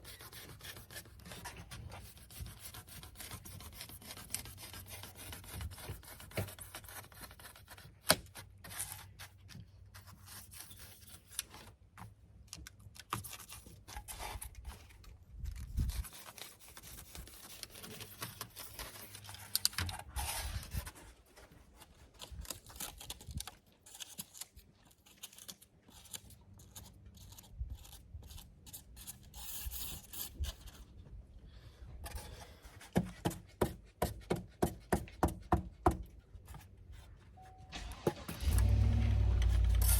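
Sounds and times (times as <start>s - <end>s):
insulation scraping and tearing: 13.3s - 30.8s, 37.7s - 39.9s.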